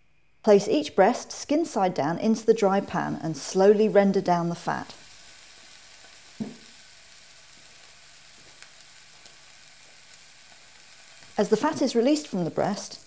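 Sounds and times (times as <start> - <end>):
duck breast sizzling in pan: 1.7 - 13.0
brief thump: 6.4 - 6.7.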